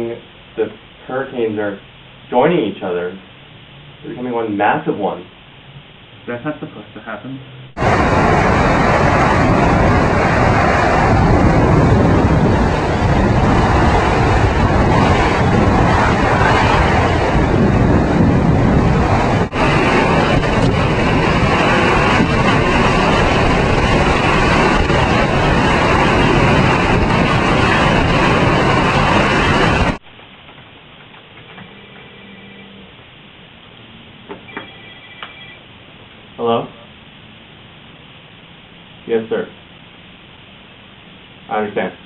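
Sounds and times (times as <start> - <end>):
surf roaring: 0.0 - 42.0
storm wind on microphone: 7.4 - 30.1.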